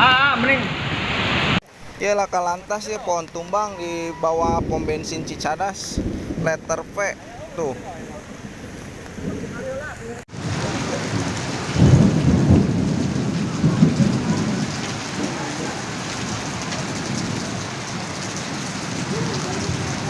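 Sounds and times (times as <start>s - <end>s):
heavy rain pouring: 0.0s - 20.0s
loud low rumbling: 4.3s - 17.6s.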